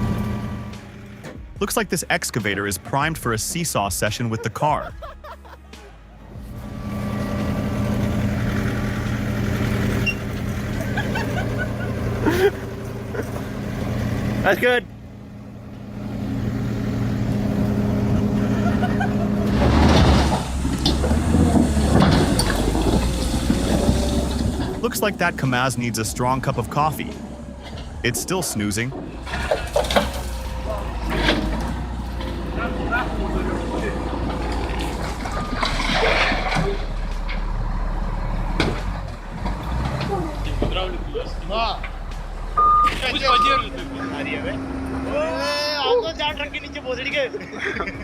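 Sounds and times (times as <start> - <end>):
heavy vehicle engine running: 0.0 - 5.0, 5.9 - 48.0
rattling: 18.0 - 43.3.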